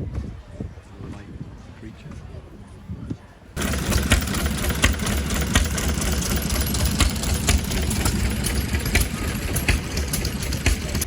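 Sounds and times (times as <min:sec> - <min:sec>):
old engine chugging: 0:03.6 - 0:11.0
sharp engine knocks: 0:03.6 - 0:11.0.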